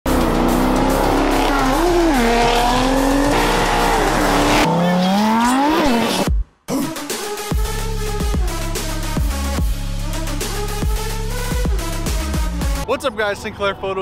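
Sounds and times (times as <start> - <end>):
car engine at high revs: 0.1 - 6.3
sports car engine revving: 0.1 - 6.3.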